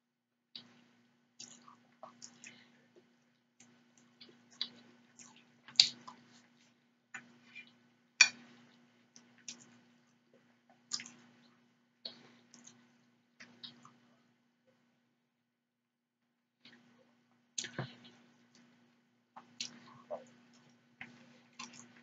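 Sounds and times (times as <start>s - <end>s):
person chewing with mouth clicks: 3.6s - 6.5s, 10.7s - 11.3s, 12.1s - 14.0s, 19.4s - 22.0s.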